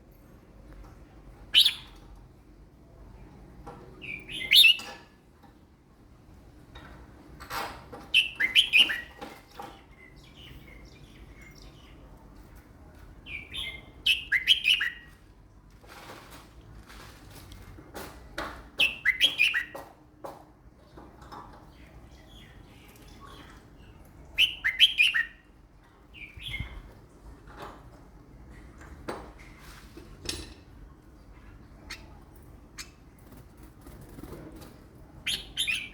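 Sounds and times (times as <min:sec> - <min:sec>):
soft bird calls: 0:01.5 - 0:02.0, 0:04.0 - 0:05.0, 0:08.1 - 0:12.1, 0:31.4 - 0:33.1, 0:35.2 - 0:35.9.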